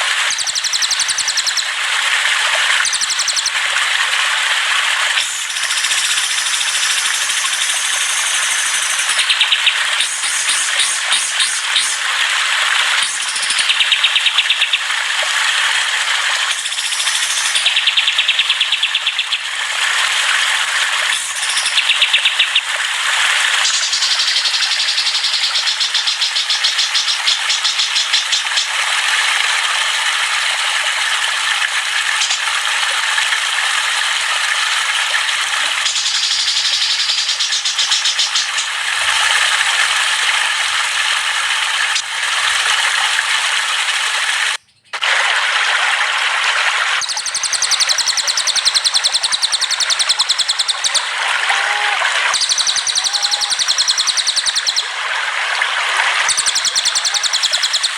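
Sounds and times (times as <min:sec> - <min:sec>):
songbird trills and chirps: 0:00.3 - 0:01.7, 0:02.8 - 0:03.6, 0:05.3 - 0:12.0, 0:13.0 - 0:14.8, 0:16.5 - 0:19.4, 0:21.1 - 0:22.7, 0:23.6 - 0:28.8, 0:35.9 - 0:38.7, 0:47.0 - 0:51.1, 0:52.4 - 0:54.9, 0:56.3 - 0:57.9.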